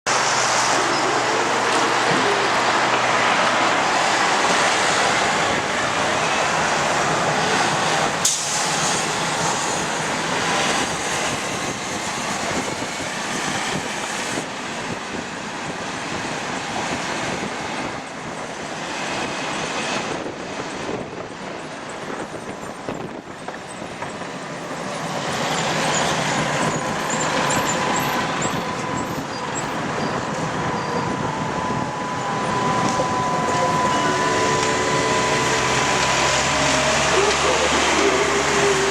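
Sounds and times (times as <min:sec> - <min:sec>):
tram rumbling on rails: 0:00.1 - 0:38.9
steady whine: 0:26.3 - 0:38.9.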